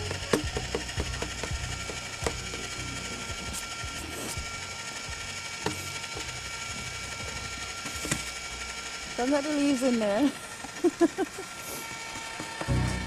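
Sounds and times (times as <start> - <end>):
sharp knocks: 0.0 - 2.7
ice cream maker motor grinding: 0.0 - 13.0.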